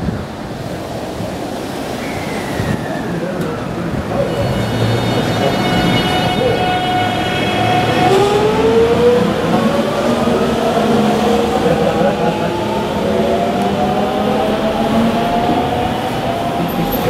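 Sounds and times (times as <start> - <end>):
train running rumble: 3.4 - 17.0
train motors whining rising: 4.2 - 17.0.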